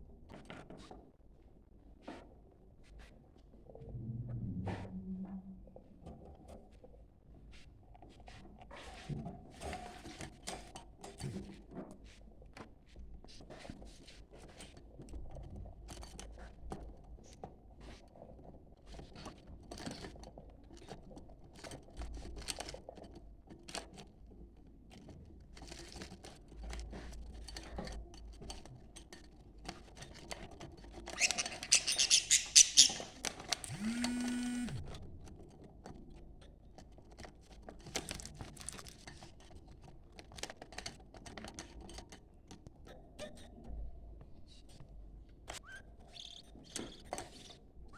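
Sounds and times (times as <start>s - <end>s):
low steady tone: 3.8s - 5.9s
budgerigars chattering: 31.2s - 33.2s
high rapid bird chirping: 31.2s - 33.2s.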